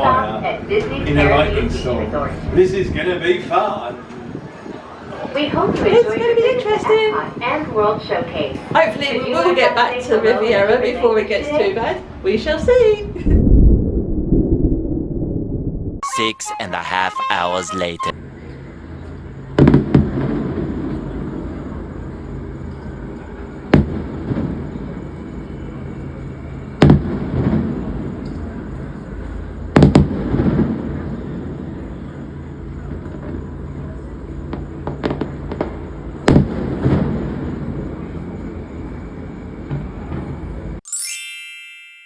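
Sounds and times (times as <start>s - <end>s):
loud booms with rumbling: 0.4s - 3.8s, 11.8s - 16.0s.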